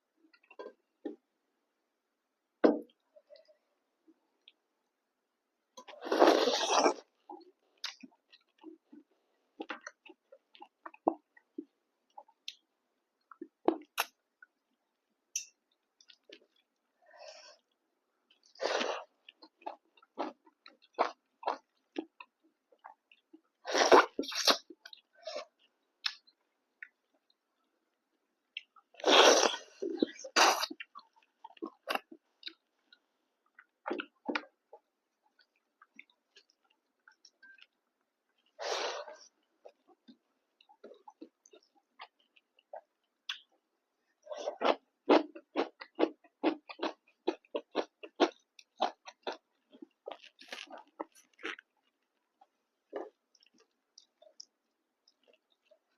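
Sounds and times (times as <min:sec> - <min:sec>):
person chewing with mouth smacks: 0:44.5 - 0:55.9.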